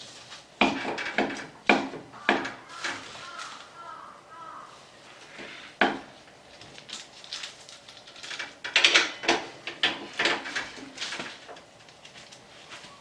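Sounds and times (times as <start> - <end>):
metal parts clicking and scraping: 6.8 - 11.5.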